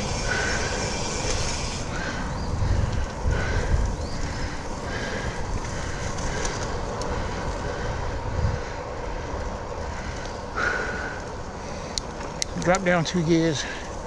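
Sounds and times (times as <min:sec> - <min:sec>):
wind on microphone: 0:00.0 - 0:09.5
bicycle tyres rolling on wet trail: 0:00.0 - 0:14.0.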